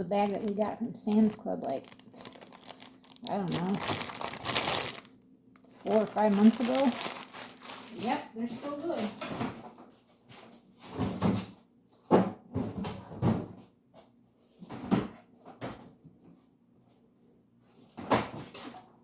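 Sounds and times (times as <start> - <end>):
knocks and bumps of kitchen work: 6.6 - 16.4, 17.8 - 19.0.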